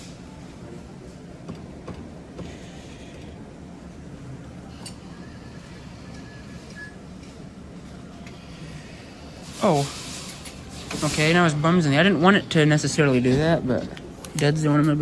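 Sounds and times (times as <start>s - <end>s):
faint held beep: 5.4s - 7.0s.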